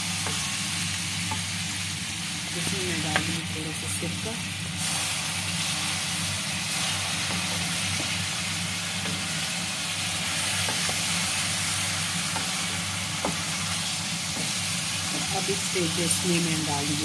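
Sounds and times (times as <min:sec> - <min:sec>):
potatoes sizzling in oil: 0:00.0 - 0:17.0
wooden spoon tapping wok: 0:00.2 - 0:00.6, 0:01.2 - 0:01.6, 0:02.6 - 0:03.5, 0:07.2 - 0:09.6, 0:10.2 - 0:17.0.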